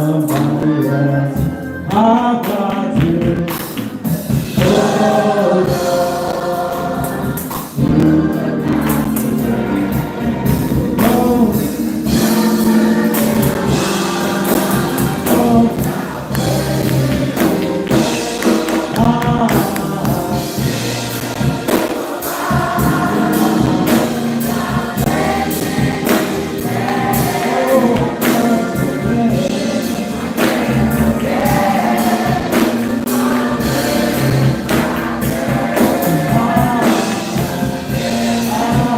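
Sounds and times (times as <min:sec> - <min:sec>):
choir and congregation singing: 0:00.0 - 0:38.9
gospel band playing: 0:00.0 - 0:38.9
tambourine and percussion beat: 0:08.8 - 0:38.9.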